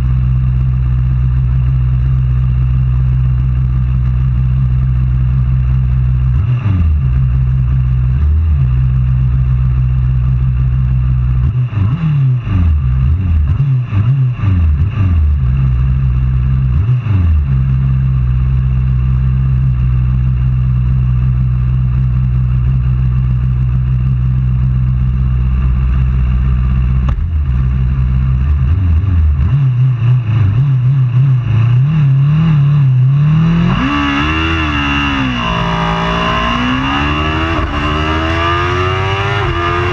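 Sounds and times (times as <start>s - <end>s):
racing motorcycle engines revving: 26.9s - 39.9s.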